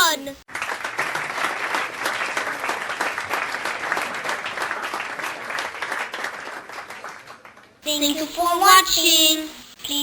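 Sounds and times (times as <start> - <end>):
crowd applause: 0.5 - 7.8.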